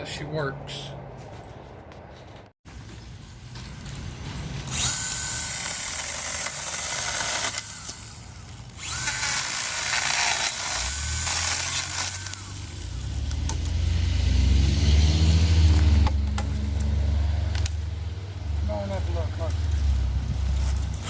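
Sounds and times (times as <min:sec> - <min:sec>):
chainsaw chain hissing: 0:04.7 - 0:13.1
electric chainsaw motor whining: 0:04.7 - 0:14.1.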